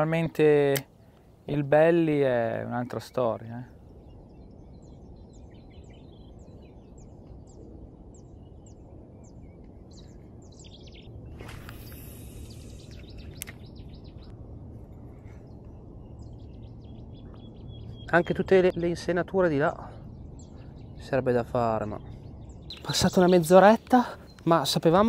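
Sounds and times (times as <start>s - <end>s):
small bird chirping: 3.5s - 14.3s, 15.2s - 19.3s, 20.0s - 25.0s
low rumble: 3.6s - 25.0s
brief hiss: 11.4s - 12.9s.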